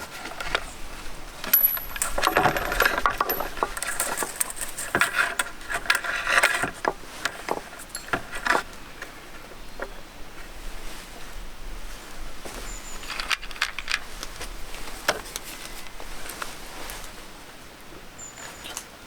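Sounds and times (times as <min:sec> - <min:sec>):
small hard objects clattering: 0:01.4 - 0:09.2.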